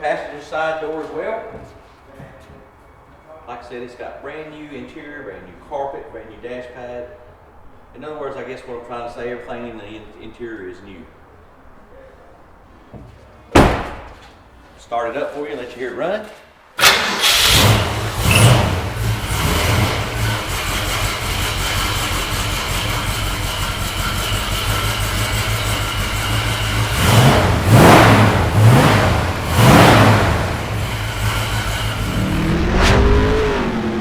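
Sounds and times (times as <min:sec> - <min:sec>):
car engine idling and revving: 0:16.8 - 0:34.0.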